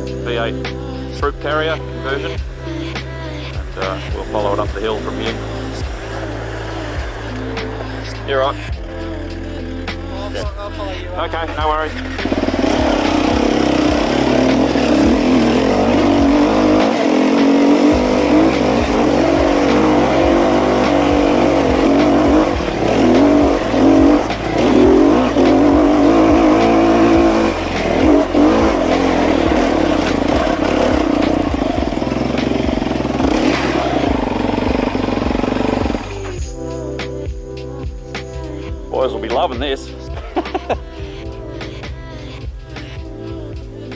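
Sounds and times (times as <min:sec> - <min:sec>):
dirt bike engine revving: 0:11.9 - 0:36.4.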